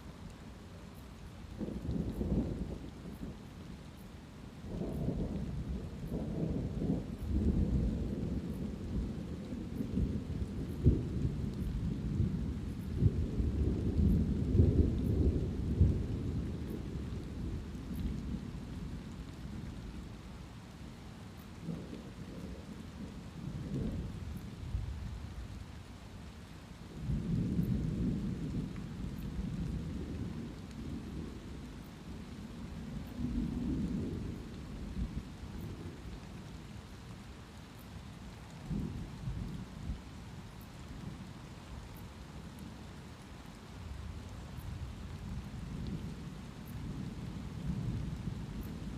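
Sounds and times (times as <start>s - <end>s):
light rain hissing: 0.0s - 48.9s
thunder rumbling: 1.6s - 3.4s, 4.7s - 20.1s, 21.6s - 25.0s, 38.6s - 41.4s, 44.6s - 48.9s.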